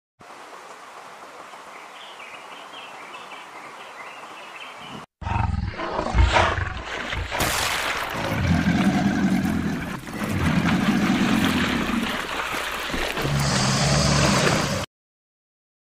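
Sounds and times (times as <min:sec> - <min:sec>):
jaguar growling and roaring: 0:05.2 - 0:06.9, 0:08.2 - 0:12.3, 0:13.1 - 0:14.9.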